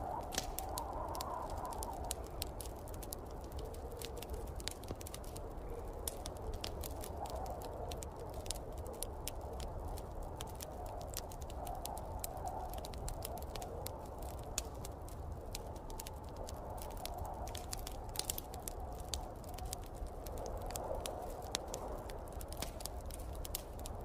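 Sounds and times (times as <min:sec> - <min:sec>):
fire crackling and popping: 0:00.0 - 0:24.0.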